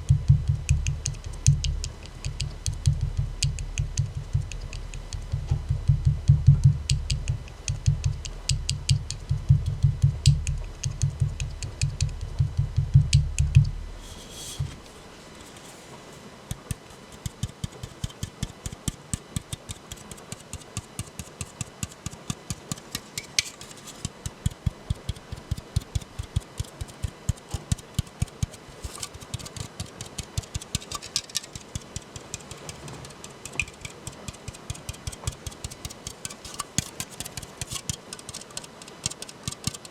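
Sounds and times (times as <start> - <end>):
fingers tapping on a can: 0.0 - 13.8, 16.4 - 39.9
can hissing: 32.2 - 39.9.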